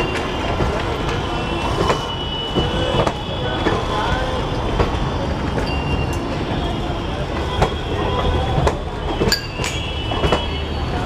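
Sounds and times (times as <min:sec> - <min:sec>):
train rumbling past: 0:00.0 - 0:11.0.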